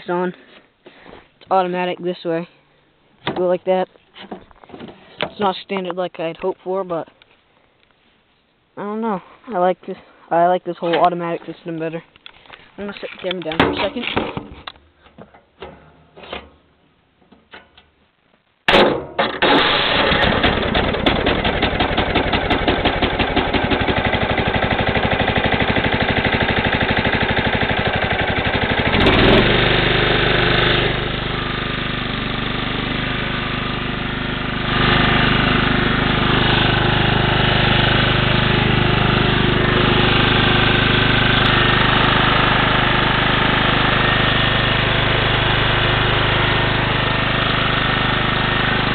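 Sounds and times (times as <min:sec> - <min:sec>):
engine starter cranking: 0:19.2 - 0:23.9
lawn tractor engine running: 0:19.2 - 0:48.9.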